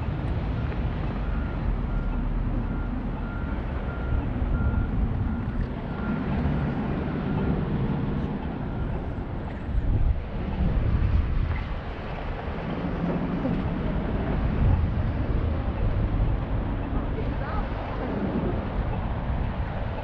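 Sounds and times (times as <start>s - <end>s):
heavy vehicle engine running: 0.0s - 20.0s
reversing alarm beeping: 0.5s - 9.9s.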